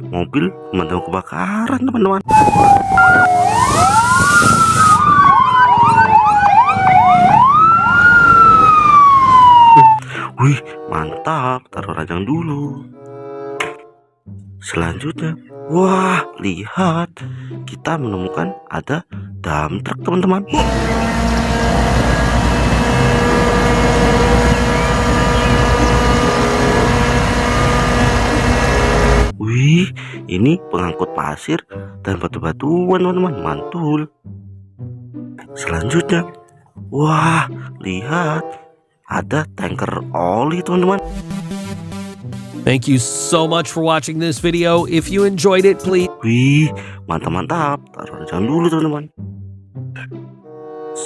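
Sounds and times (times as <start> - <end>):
fire engine siren wailing: 2.3 - 10.0, 20.6 - 29.3
yelping siren: 2.3 - 10.0, 20.6 - 29.3.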